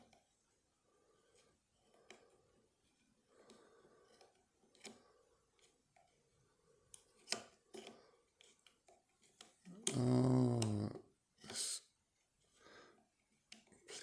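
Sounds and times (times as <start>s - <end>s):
person groaning: 9.7s - 11.1s.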